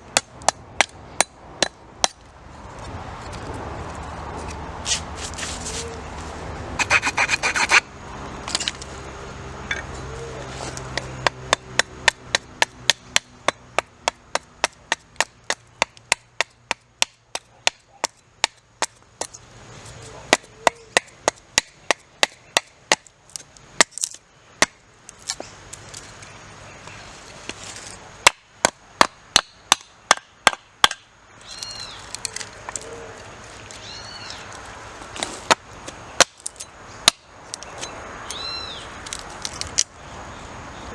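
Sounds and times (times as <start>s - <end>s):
axe chopping wood: 0.1s - 2.2s, 10.9s - 19.3s, 20.3s - 23.1s, 28.2s - 31.0s, 36.2s - 37.3s.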